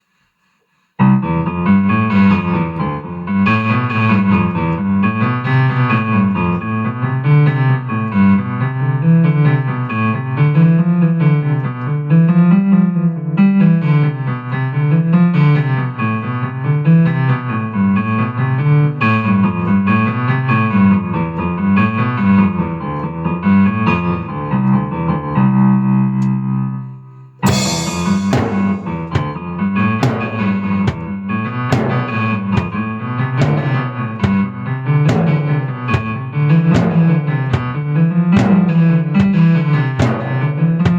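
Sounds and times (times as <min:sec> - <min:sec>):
cymbal crash: 0:27.4 - 0:29.4
drum kit playing: 0:27.4 - 0:40.9.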